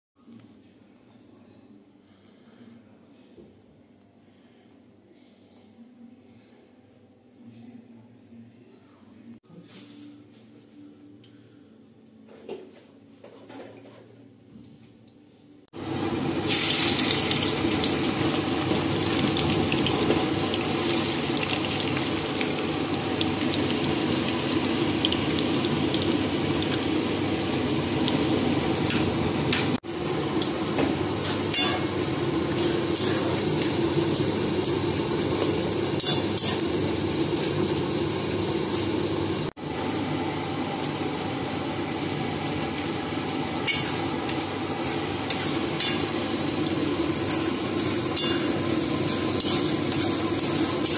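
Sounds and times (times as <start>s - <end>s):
onions sizzling in oil: 15.8s - 50.9s.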